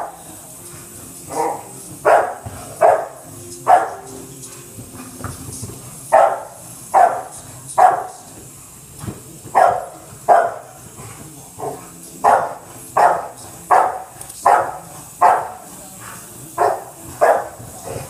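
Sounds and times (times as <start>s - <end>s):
dog barking: 1.3s - 4.2s, 6.1s - 8.3s, 9.6s - 10.8s, 11.6s - 15.7s, 16.6s - 18.0s.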